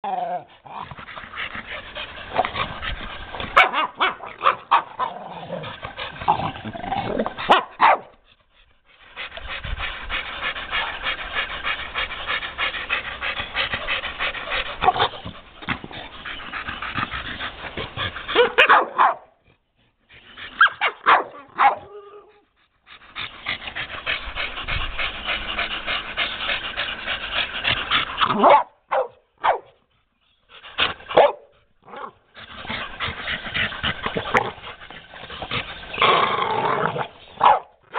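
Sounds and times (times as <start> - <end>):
dogs growling: 0.0 - 18.6, 21.4 - 28.4, 31.8 - 37.9
dog barks: 3.6 - 5.1, 7.5 - 8.1, 18.3 - 19.3, 20.6 - 21.9, 28.3 - 29.7, 31.2 - 32.1, 37.4 - 37.7.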